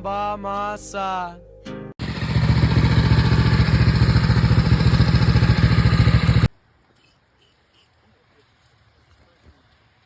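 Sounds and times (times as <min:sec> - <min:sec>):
small engine running: 0:02.0 - 0:06.5.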